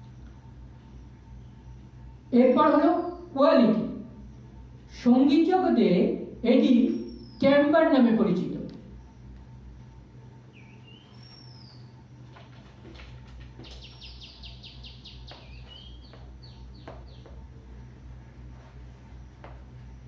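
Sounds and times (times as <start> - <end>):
low steady hum: 0.0 - 20.0
small birds chirping: 6.8 - 7.6, 10.5 - 12.3, 13.5 - 17.5.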